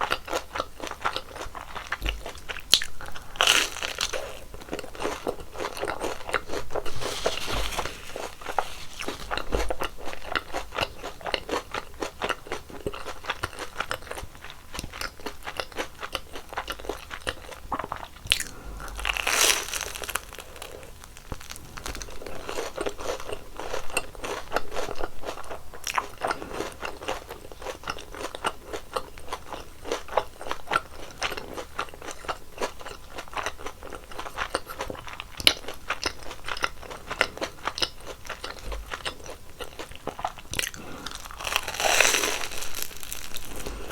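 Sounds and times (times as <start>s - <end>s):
crunching and chewing fried dough: 0.0s - 43.9s.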